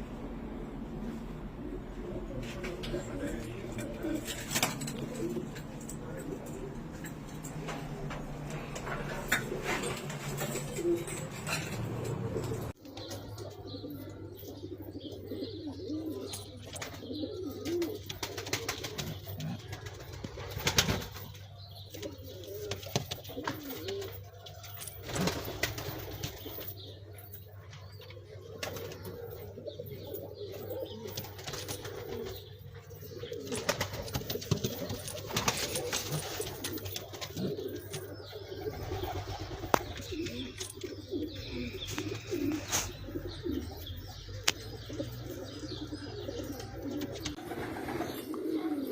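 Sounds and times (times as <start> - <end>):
steady low hum: 0.0 - 17.0
pigeons cooing: 0.2 - 48.9.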